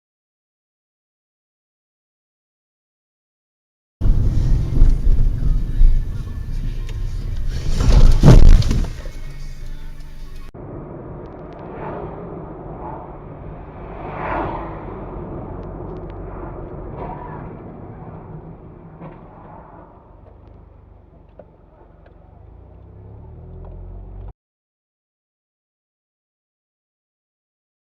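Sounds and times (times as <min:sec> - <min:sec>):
car engine and road rumble: 0:04.0 - 0:24.3.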